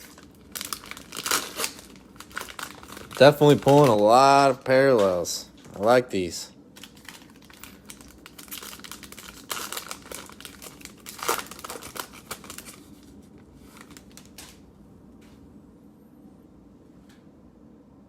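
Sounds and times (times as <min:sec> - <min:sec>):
cellophane crinkling and tearing: 0:00.0 - 0:06.0, 0:06.7 - 0:14.6.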